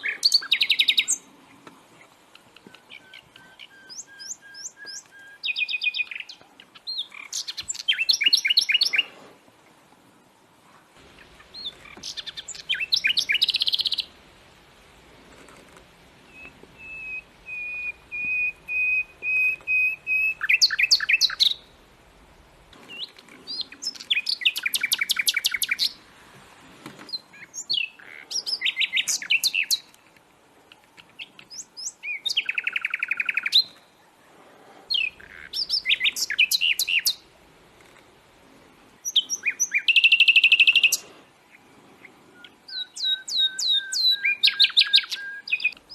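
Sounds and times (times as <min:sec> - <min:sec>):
songbird trilling: 0:02.6 - 0:09.0, 0:11.2 - 0:14.1, 0:16.3 - 0:21.7, 0:27.1 - 0:29.9, 0:31.2 - 0:33.8, 0:34.9 - 0:37.2, 0:39.0 - 0:41.1, 0:42.4 - 0:45.9
bird whistle: 0:16.3 - 0:21.6, 0:42.7 - 0:45.8.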